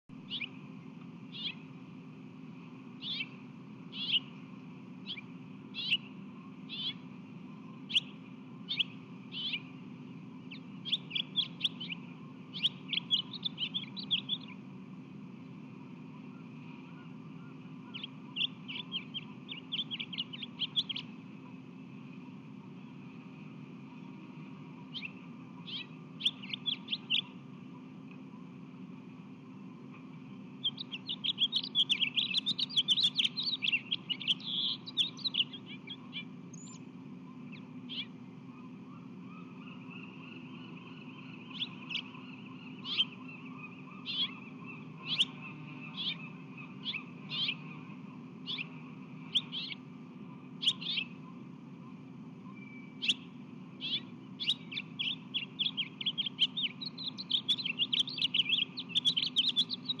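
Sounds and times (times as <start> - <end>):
songbird chirping: 0.1 - 60.0.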